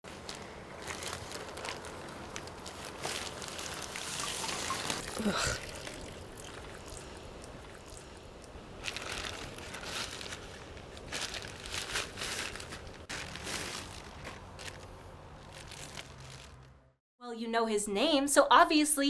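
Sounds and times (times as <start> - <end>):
crunching and crinkling rustle: 0.1 - 6.2, 8.1 - 16.8.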